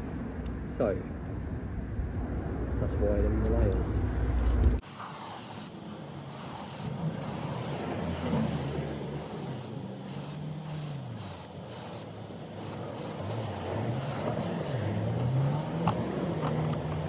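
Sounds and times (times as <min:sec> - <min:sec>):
aerosol can spraying bursts: 0:04.8 - 0:17.0.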